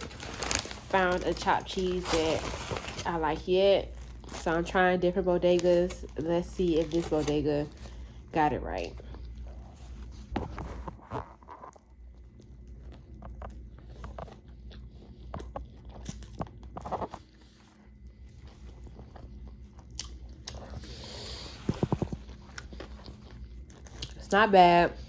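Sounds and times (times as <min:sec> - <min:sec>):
person chewing sandwich: 0:08.9 - 0:24.2.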